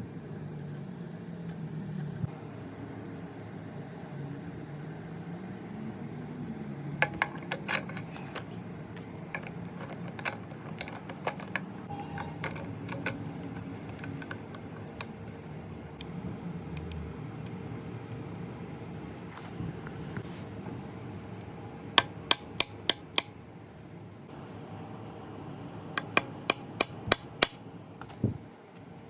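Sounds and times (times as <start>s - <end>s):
steady low hum: 0.0s - 29.0s
small hard parts clicking: 7.0s - 16.1s.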